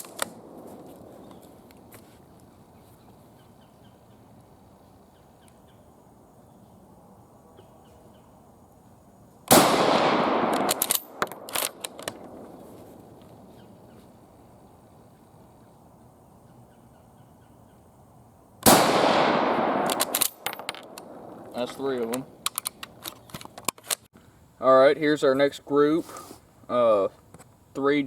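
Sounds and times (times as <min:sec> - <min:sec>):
rifle shot: 0:00.0 - 0:00.9, 0:09.5 - 0:12.6, 0:18.6 - 0:21.6
rifle bolt clicks: 0:10.5 - 0:12.4, 0:19.7 - 0:21.1, 0:22.0 - 0:24.0.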